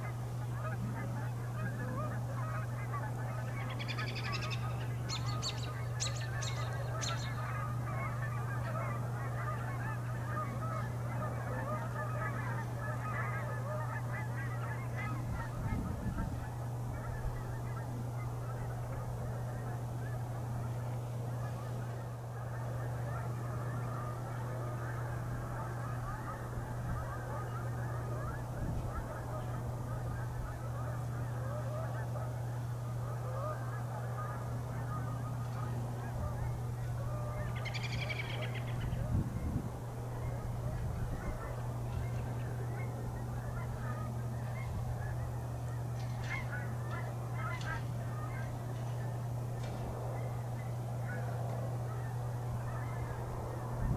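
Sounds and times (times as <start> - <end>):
geese and swans honking: 0.0 - 53.9
low hum: 14.4 - 53.9.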